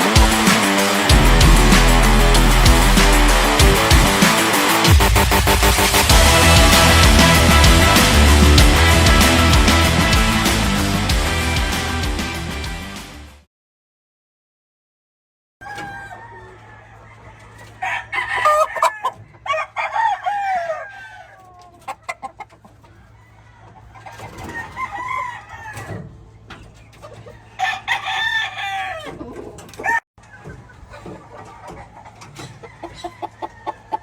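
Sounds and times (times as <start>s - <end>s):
roosters crowing: 0.0s - 4.9s, 15.6s - 26.2s, 27.0s - 30.4s, 31.8s - 34.0s
low hum: 1.1s - 4.2s
chickens clucking: 15.6s - 34.0s.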